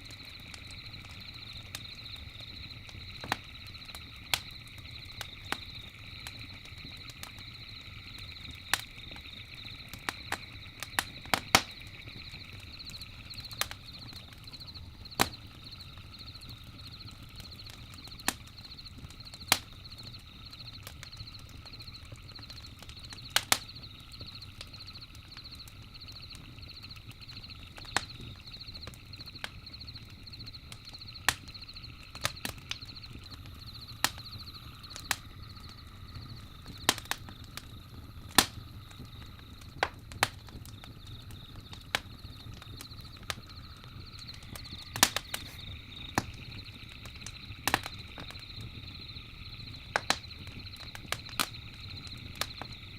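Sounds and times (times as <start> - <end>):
campfire crackling and popping: 0.0 - 52.9.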